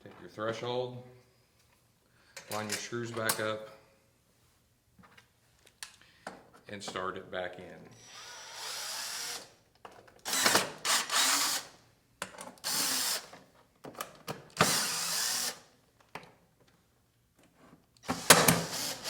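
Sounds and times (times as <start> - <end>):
power drill driving screws: 8.0 - 9.5, 10.2 - 11.8, 12.6 - 13.3, 14.6 - 15.7, 18.0 - 19.0
drill clicks: 10.2 - 11.7, 12.6 - 13.3, 14.6 - 15.6, 18.0 - 19.0.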